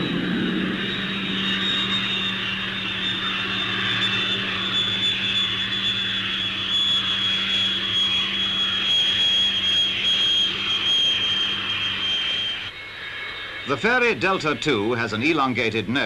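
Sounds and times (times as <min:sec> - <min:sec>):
low hum: 0:00.0 - 0:09.1
jet engine whine: 0:00.0 - 0:16.0.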